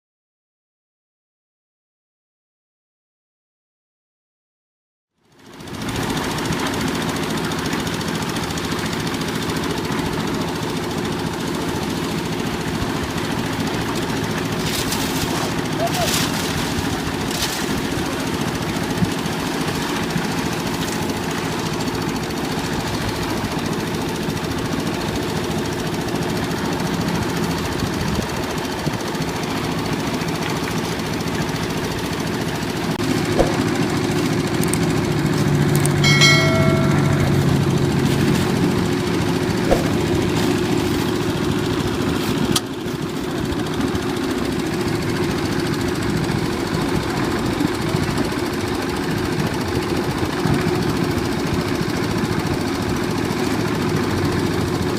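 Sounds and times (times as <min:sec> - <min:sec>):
diesel engine knocking chug: 0:05.2 - 0:54.9
brief high tone: 0:35.8 - 0:39.2.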